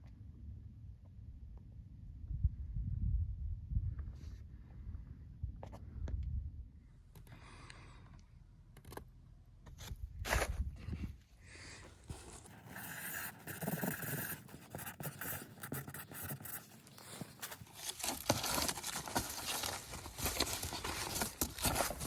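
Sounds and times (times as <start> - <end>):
handling scraping and rustling: 11.9 - 22.0.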